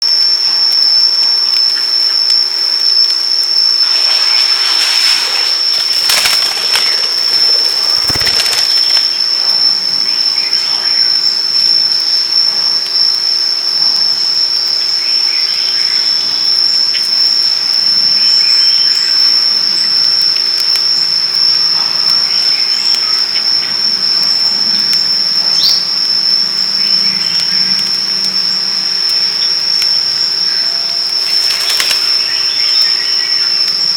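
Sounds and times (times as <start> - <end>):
high-pitched insect drone: 0.0 - 33.9
faint chirps: 1.5 - 11.8, 25.4 - 33.9
noisy rustles: 3.6 - 10.2, 30.8 - 33.4.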